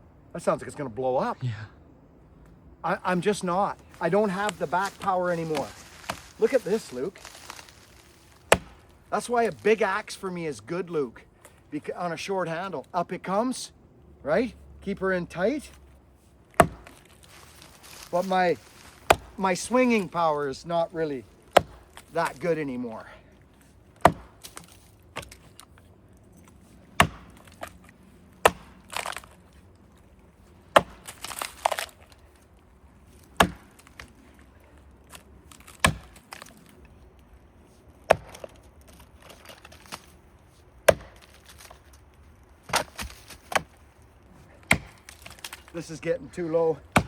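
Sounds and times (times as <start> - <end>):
axe chopping wood: 8.4 - 9.4, 16.5 - 20.6, 21.5 - 22.8, 24.0 - 25.7, 26.9 - 27.8, 28.4 - 29.4, 30.7 - 32.0, 33.2 - 34.2, 35.5 - 36.5, 38.0 - 40.1, 40.8 - 41.9, 42.6 - 43.8, 44.5 - 46.0.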